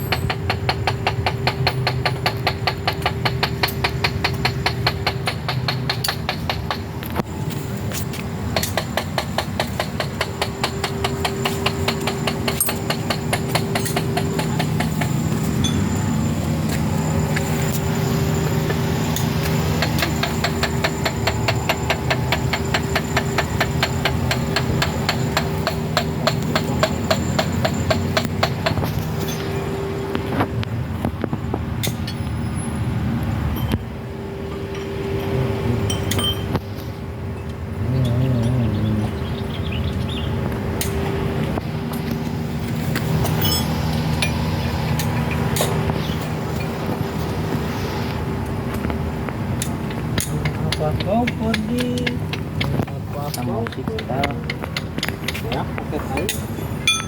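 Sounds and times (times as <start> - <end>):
engine idling: 0.0 - 31.1
steady hum and low rumble: 0.0 - 57.0
metal clinking: 10.0 - 17.9, 35.8 - 36.6, 41.9 - 45.8, 56.2 - 57.0.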